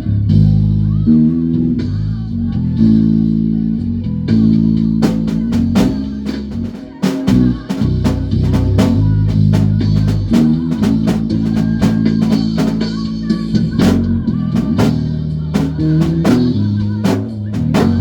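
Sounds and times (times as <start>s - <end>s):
electric bass guitar: 0.0s - 18.0s
drum kit beat: 5.0s - 18.0s.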